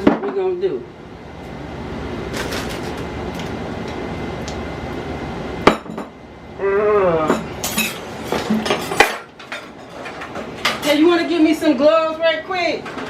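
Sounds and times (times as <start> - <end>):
dishes and utensils clattering: 7.3 - 11.1.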